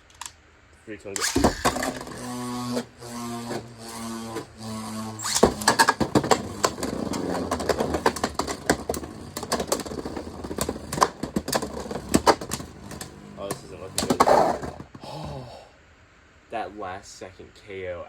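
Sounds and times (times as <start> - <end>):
spinning tops clicking and knocking: 1.2 - 14.9
scraping whir of spinning tops: 1.2 - 15.0.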